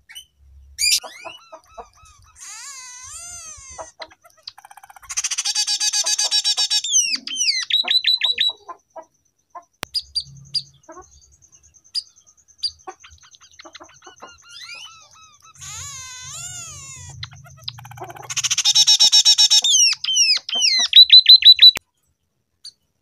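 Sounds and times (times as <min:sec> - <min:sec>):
bird singing fast trill: 0:00.1 - 0:08.8, 0:09.9 - 0:21.8
sharp bird chips: 0:09.8 - 0:21.8.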